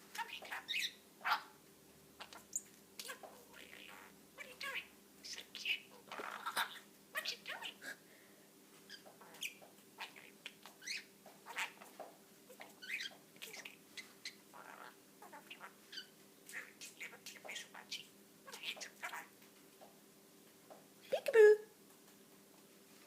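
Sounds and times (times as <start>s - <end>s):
budgerigar chattering: 0.2s - 1.5s, 12.5s - 19.3s.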